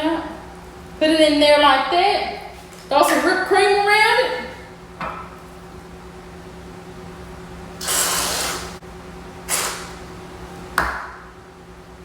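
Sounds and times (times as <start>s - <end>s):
aerosol can hissing: 7.8s - 8.8s.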